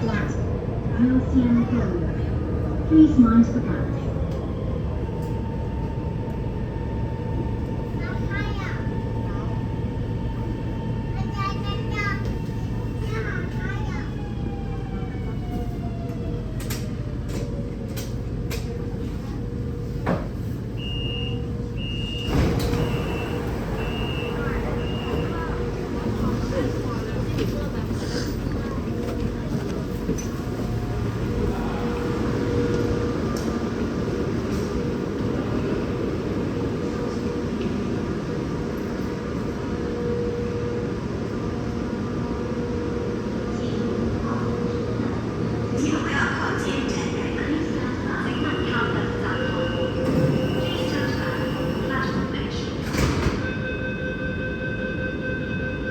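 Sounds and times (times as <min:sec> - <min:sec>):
train humming: 0:00.0 - 0:55.9
door warning beeps: 0:20.8 - 0:26.4, 0:48.2 - 0:55.9
sliding doors moving: 0:22.0 - 0:31.0.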